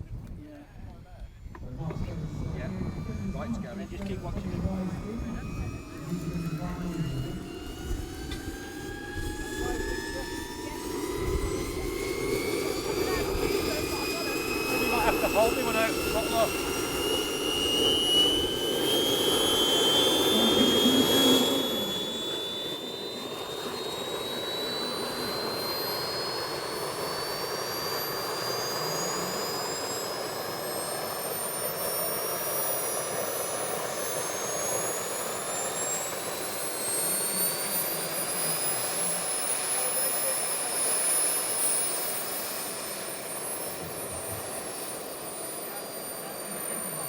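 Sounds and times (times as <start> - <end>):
jet turbine whine: 0.1 - 47.0
rushing jet noise: 1.9 - 47.0.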